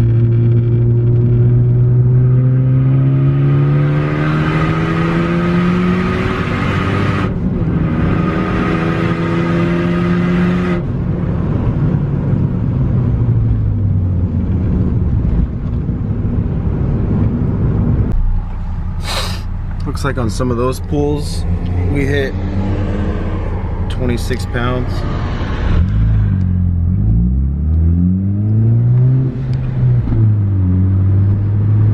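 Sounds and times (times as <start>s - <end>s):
car engine revving under throttle: 0.0s - 11.0s, 21.2s - 31.9s.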